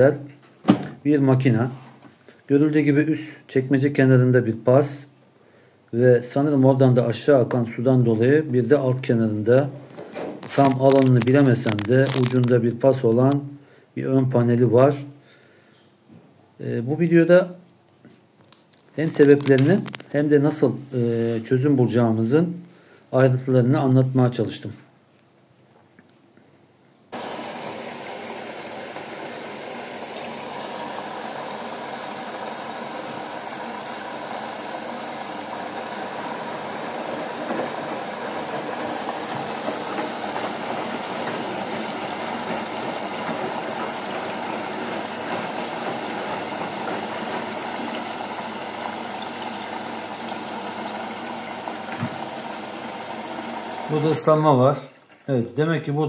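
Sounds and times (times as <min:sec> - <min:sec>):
washing machine water rushing: 0:27.2 - 0:55.4.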